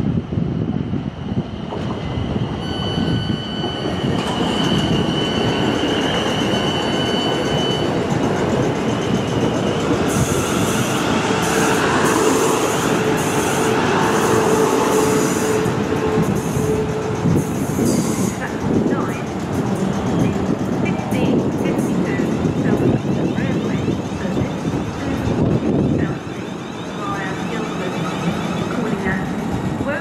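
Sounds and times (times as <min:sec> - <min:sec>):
train rumbling on rails: 0:00.0 - 0:30.0
high-pitched wheel squeal: 0:02.5 - 0:08.0.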